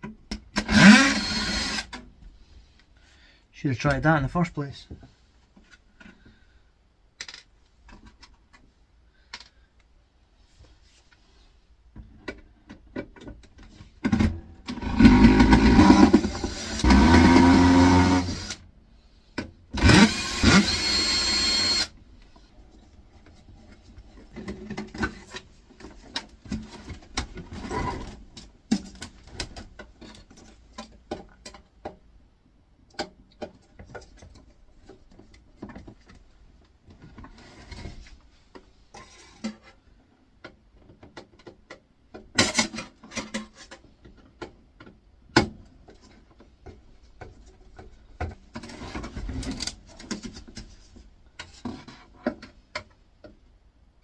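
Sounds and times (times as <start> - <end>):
power drill whirring: 0.6 - 2.0, 14.8 - 18.6, 19.8 - 21.9.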